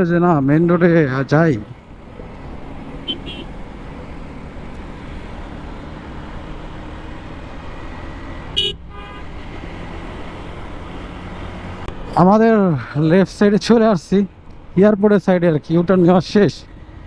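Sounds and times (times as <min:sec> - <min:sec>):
motorcycle engine and road rumble: 0:00.0 - 0:17.0
vehicle horn toot: 0:03.0 - 0:03.5, 0:08.5 - 0:09.4.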